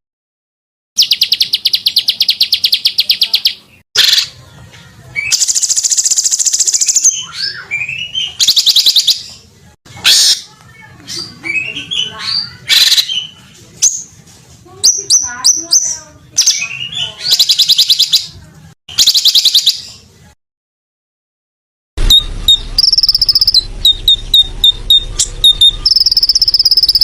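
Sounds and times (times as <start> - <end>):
low hum: 22.0 - 26.9
songbird whistles and buzzy trills: 22.0 - 27.0.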